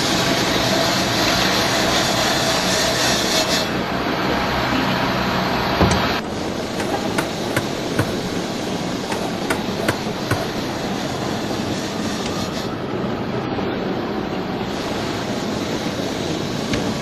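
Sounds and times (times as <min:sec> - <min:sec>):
steady rumbling background: 0:05.3 - 0:11.8
sharp knocks: 0:06.8 - 0:08.3, 0:09.1 - 0:10.6.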